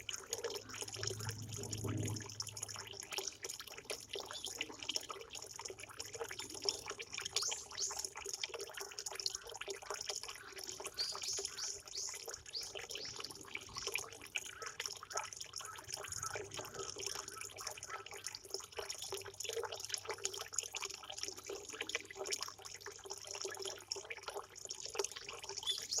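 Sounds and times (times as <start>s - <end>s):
water trickling and splashing: 0.0s - 26.0s
small birds chirping: 10.7s - 14.0s, 25.5s - 26.0s.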